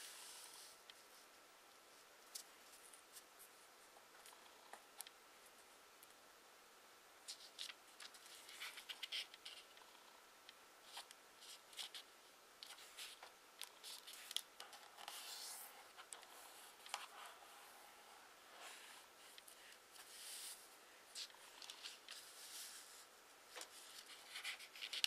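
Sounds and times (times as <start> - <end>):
fingers rustling along paper fold: 7.3 - 9.9, 18.7 - 25.0
paper crinkling: 23.5 - 25.0.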